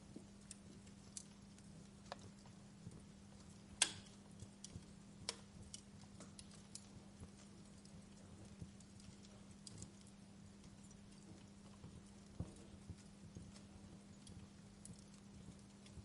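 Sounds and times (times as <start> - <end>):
fireplace crackling and popping: 0.0 - 16.0
low steady hum: 0.0 - 16.0.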